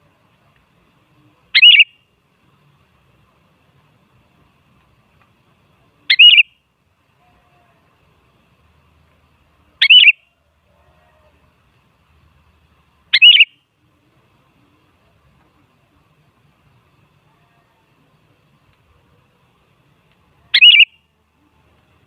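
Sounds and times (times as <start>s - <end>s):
bulbul warbled calls: 1.5s - 2.0s, 6.1s - 6.5s, 9.8s - 10.2s, 13.1s - 13.6s, 20.5s - 21.0s.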